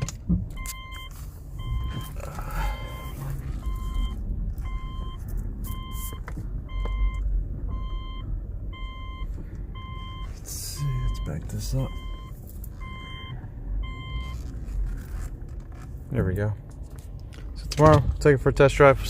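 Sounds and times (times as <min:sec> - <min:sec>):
vehicle warning beeper: 0:00.0 - 0:14.6.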